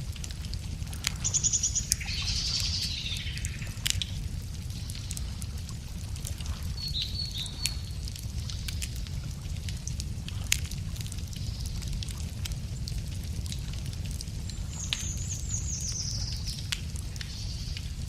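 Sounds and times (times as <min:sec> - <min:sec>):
campfire crackling and popping: 0:00.0 - 0:18.0
steady low rumble: 0:00.0 - 0:18.0
birds singing: 0:01.3 - 0:03.8, 0:06.8 - 0:08.0.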